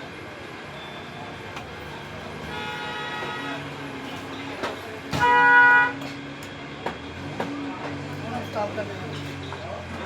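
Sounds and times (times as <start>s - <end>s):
vehicle horn blast: 2.5s - 3.6s, 5.2s - 6.0s.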